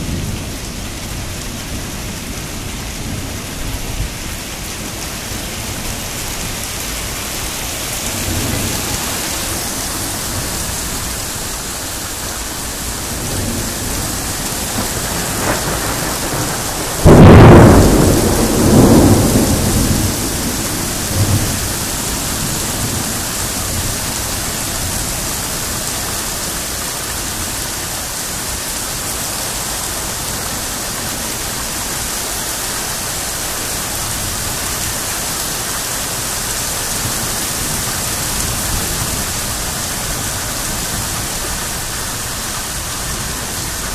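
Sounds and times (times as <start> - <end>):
steady rain: 0.0 - 43.9
thunder rumbles: 8.0 - 25.1
loud crack of thunder: 13.1 - 23.1.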